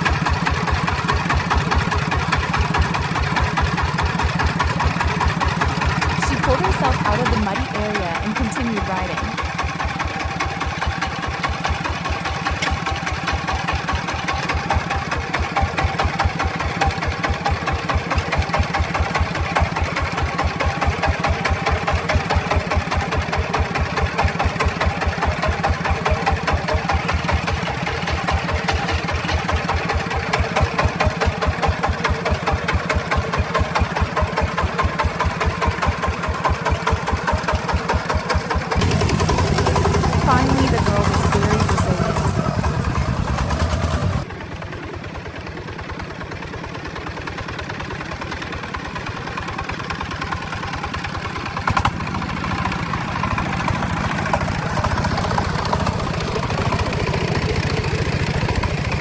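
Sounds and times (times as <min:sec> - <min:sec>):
truck engine chugging: 0:00.0 - 0:59.0
constant whine: 0:06.2 - 0:09.4, 0:38.8 - 0:44.3.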